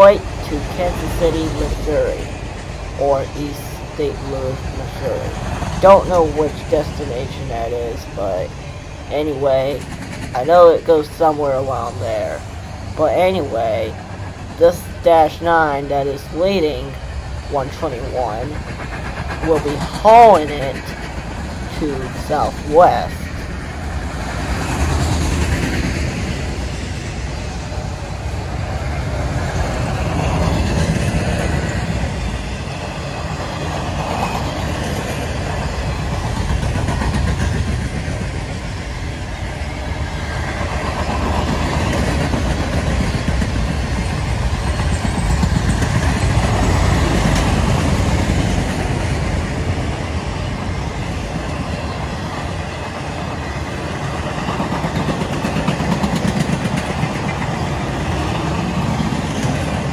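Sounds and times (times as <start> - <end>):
freight train wheels rumbling on rail: 0.0 - 59.9.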